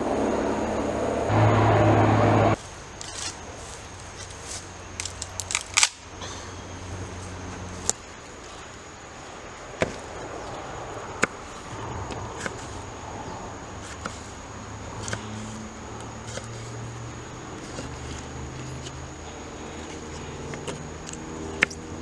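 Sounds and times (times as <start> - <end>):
sharp clicks: 5.0 - 6.2.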